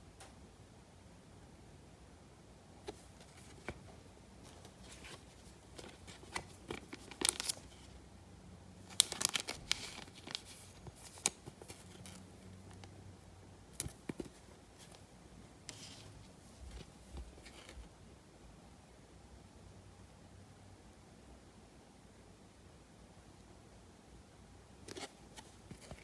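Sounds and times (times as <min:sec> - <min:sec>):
wrapper crinkling and tearing: 0:04.8 - 0:07.9, 0:08.9 - 0:12.9.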